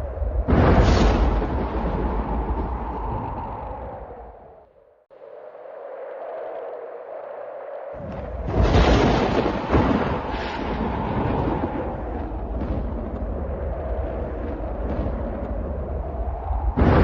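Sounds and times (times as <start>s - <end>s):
thunder clap: 0.0s - 4.4s, 8.0s - 17.0s
deep rolling thunder rumble: 0.0s - 4.5s, 8.0s - 17.0s
sharp thunder crack: 0.4s - 3.2s, 8.0s - 15.7s, 16.8s - 17.0s.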